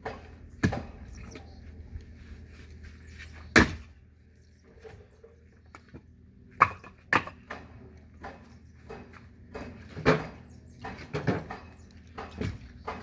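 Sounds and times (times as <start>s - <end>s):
firewood splitting strikes: 0.0s - 1.0s, 3.5s - 4.0s, 6.6s - 13.0s.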